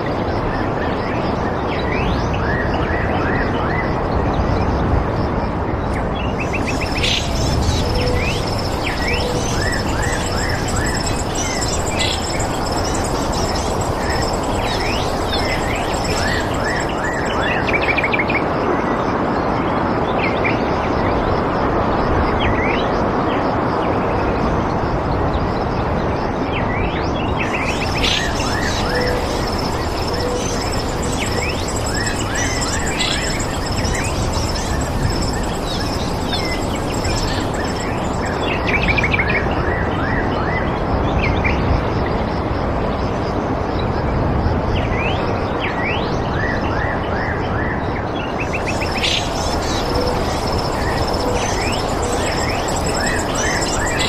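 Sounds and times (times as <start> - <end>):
steady rushing noise: 4.4 - 19.2, 27.2 - 39.6, 48.1 - 54.0
birds chirping: 6.2 - 18.1, 27.4 - 39.2, 48.3 - 54.0
high thin steady tone: 6.5 - 17.9, 27.4 - 39.0.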